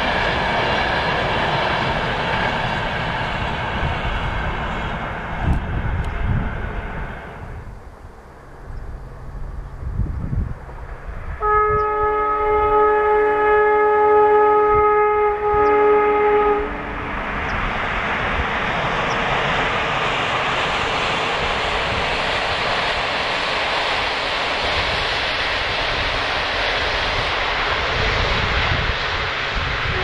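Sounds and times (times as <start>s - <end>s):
train rumbling along tracks: 0.0s - 30.0s
train horn chord: 11.4s - 17.2s.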